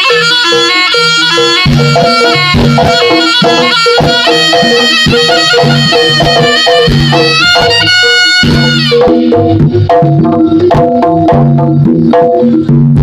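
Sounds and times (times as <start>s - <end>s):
shrill reed trumpet melody: 0.0s - 9.6s
drum strokes: 0.0s - 13.0s.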